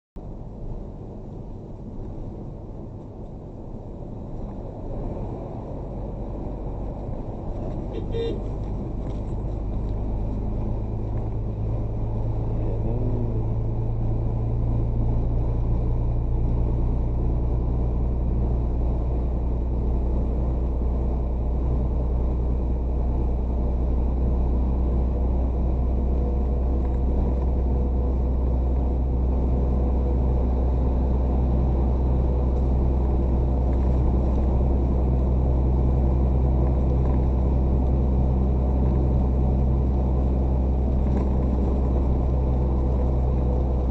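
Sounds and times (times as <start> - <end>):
heavy truck engine drone: 0.2 - 43.9.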